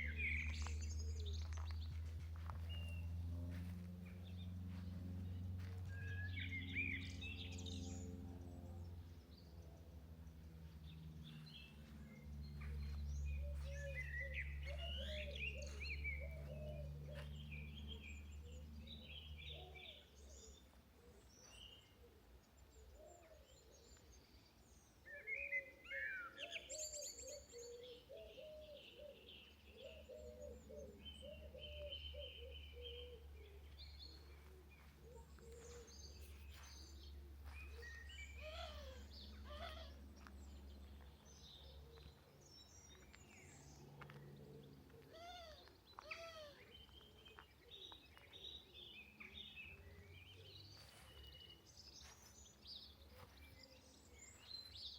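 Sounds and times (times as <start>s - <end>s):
steady low rumble: 0.0s - 19.3s
songbirds singing and chirping: 0.0s - 54.9s.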